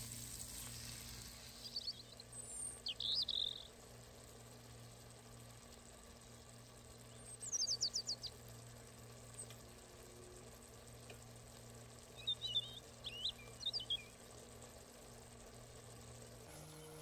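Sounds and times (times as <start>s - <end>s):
faint steady hum: 0.0s - 17.0s
songbird chirping: 1.6s - 3.8s, 6.9s - 8.4s, 12.0s - 14.3s.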